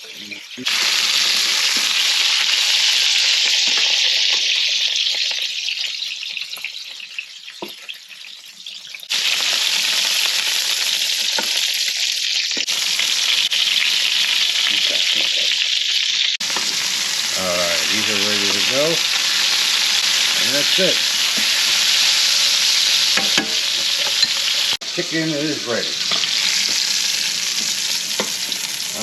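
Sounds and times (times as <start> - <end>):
meat sizzling in a skillet: 0.0 - 29.0.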